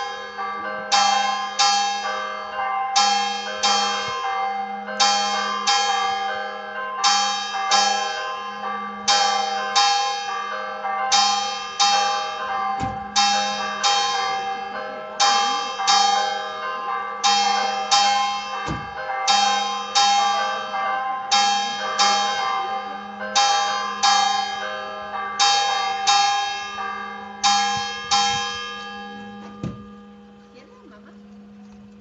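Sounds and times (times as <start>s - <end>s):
church bells ringing: 0.0s - 32.0s.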